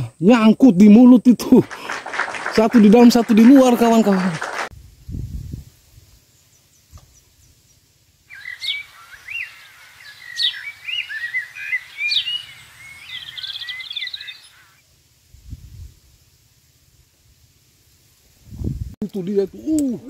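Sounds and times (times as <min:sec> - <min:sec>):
songbird singing: 0:05.9 - 0:14.9.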